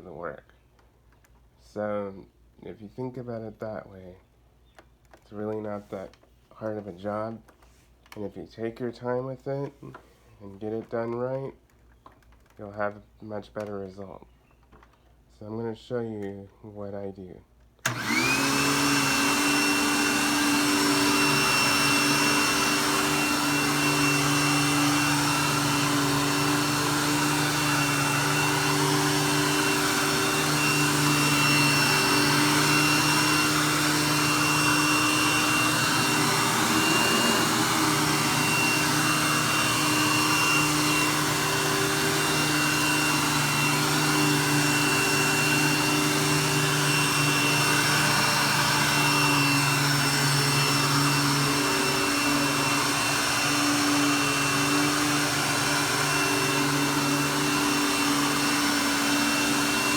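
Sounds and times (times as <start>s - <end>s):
vacuum cleaner on carpet: 17.8s - 59.9s.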